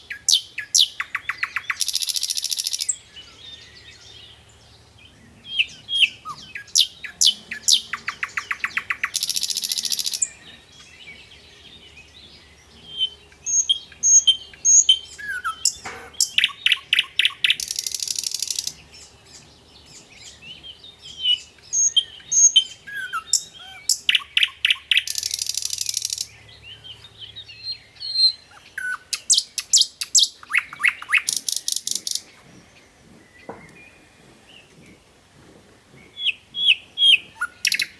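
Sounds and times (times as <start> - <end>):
bird chirps: 0.0 - 35.0, 36.0 - 37.9
songbird trilling song: 0.0 - 35.1, 35.8 - 37.9.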